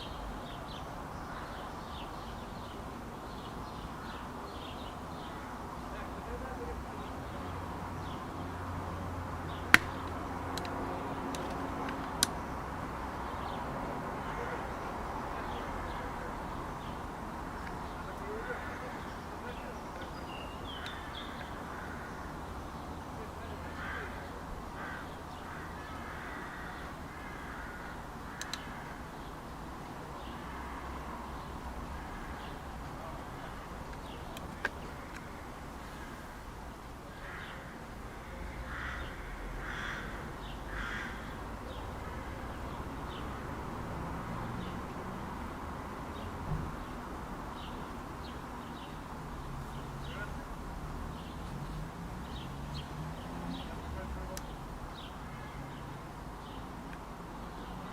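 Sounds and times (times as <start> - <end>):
birds calling: 0.0 - 43.5, 47.6 - 56.9
sharp clicks and ticks: 9.7 - 12.4, 28.4 - 28.7
sharp clicks: 28.4 - 28.7.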